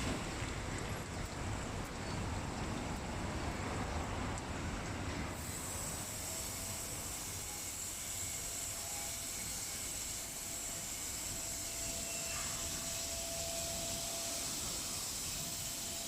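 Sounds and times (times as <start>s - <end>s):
car wash machine hissing: 5.5s - 16.0s.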